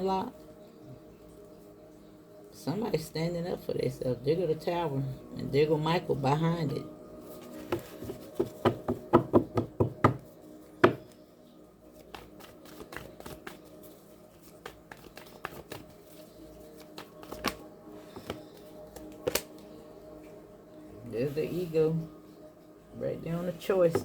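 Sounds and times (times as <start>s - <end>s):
faint background music: 0.0s - 24.0s
cards tapping and shuffling: 7.4s - 10.2s, 10.8s - 11.2s, 12.0s - 19.6s
knock: 7.7s - 10.2s.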